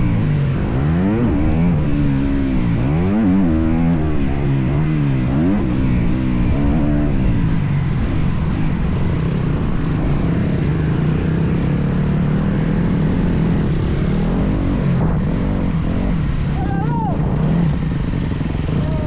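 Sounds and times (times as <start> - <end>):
motorbike engine revving: 0.0 - 19.0.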